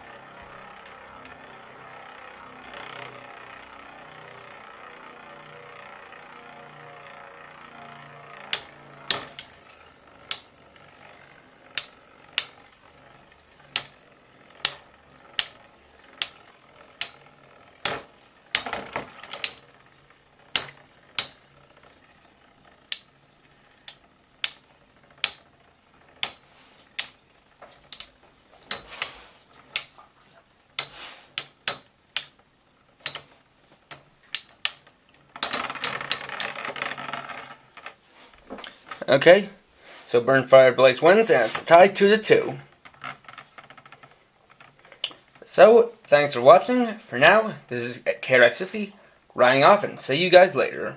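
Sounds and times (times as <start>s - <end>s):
faint spinning hum: 0.0s - 50.9s
metal spinning tops clacking: 8.1s - 39.1s.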